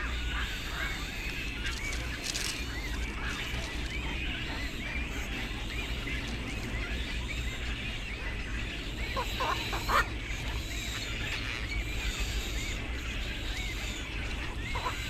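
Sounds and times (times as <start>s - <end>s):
steady low rumble: 0.0s - 8.5s
faint bird chirps: 0.0s - 15.0s
harsh bird calls: 0.0s - 15.0s.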